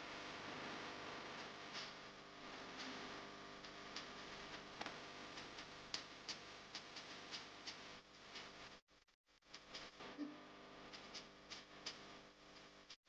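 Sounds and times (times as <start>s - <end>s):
low steady hiss: 0.0s - 8.8s.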